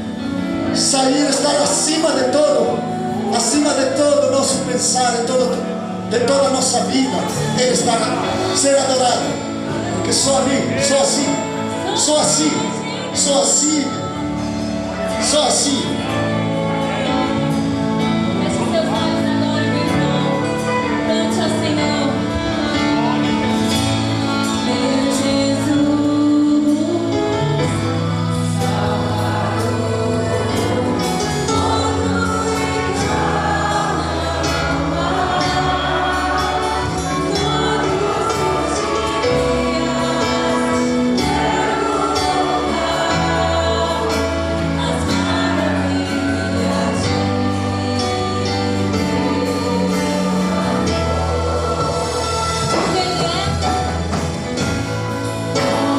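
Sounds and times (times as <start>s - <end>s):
congregation singing a hymn: 0.0s - 55.9s
instrumental accompaniment with beat: 5.0s - 55.9s.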